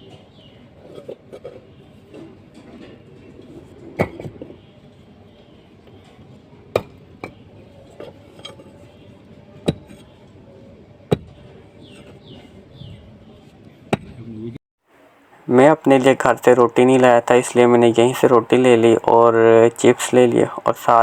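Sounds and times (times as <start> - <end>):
low background murmur: 0.0 - 13.9.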